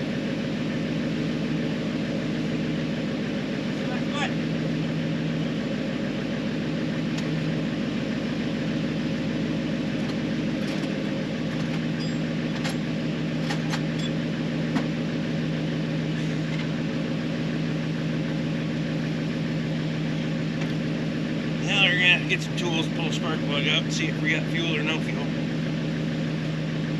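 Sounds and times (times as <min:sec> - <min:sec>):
engine idling: 0:00.0 - 0:26.9.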